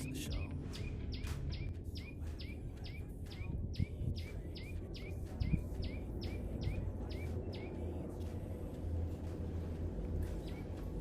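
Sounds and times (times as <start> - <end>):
songbird calling: 0.0 - 8.0
low rumble: 0.0 - 11.0.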